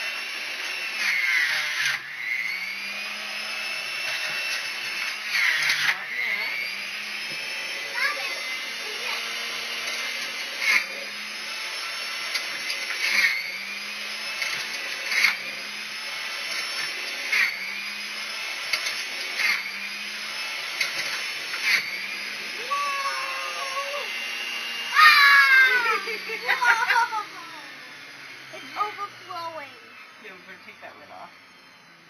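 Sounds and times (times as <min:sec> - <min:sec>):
motor whirring with hum: 0:00.0 - 0:32.0
rising whine and burst: 0:17.5 - 0:32.0.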